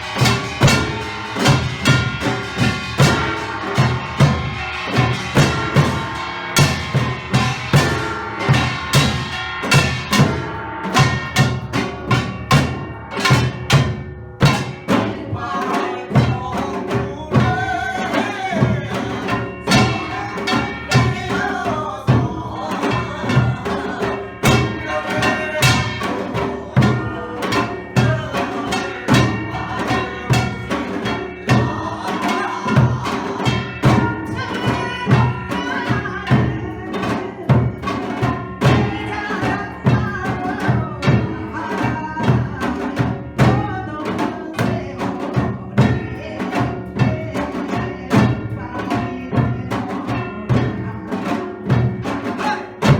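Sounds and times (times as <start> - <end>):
drums and gongs playing: 0.0 - 52.9
voices singing: 14.4 - 52.9.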